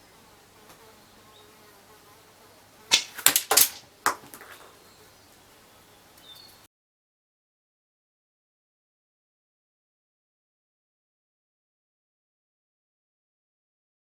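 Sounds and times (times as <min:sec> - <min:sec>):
faint background noise: 0:00.0 - 0:06.7
airsoft rifle clicks and knocks: 0:02.9 - 0:04.7.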